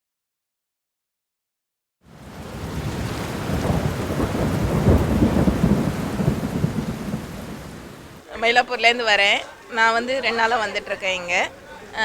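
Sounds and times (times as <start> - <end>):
heavy rain: 2.0 - 12.0
low rumble of thunder: 2.2 - 8.2.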